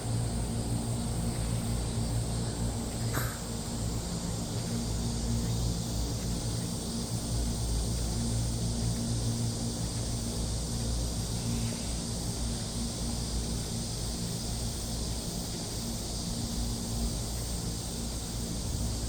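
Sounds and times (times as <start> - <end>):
high hiss: 0.9 - 5.9.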